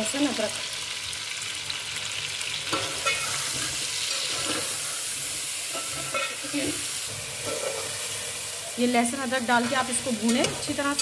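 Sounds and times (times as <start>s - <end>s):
potatoes sizzling in hot oil: 0.0s - 11.0s
metal spoon scraping pot: 2.7s - 4.9s, 5.7s - 8.1s.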